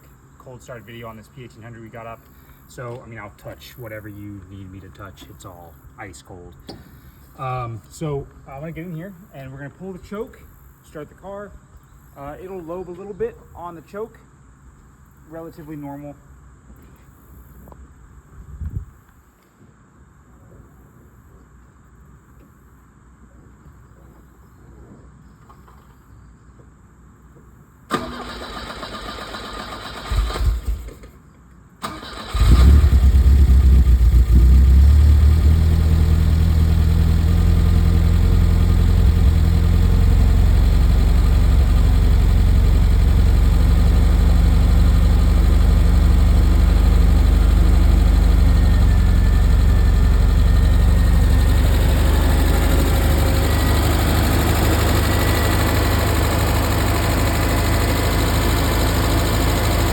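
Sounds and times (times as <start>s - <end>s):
starter motor cranking: 27.9s - 31.1s, 31.8s - 33.9s
car engine fast idle: 27.9s - 31.2s, 31.8s - 59.9s.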